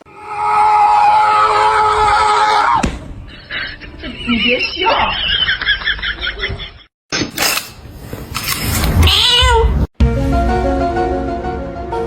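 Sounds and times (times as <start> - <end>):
cat meowing: 8.9 - 9.9
music: 10.0 - 12.0.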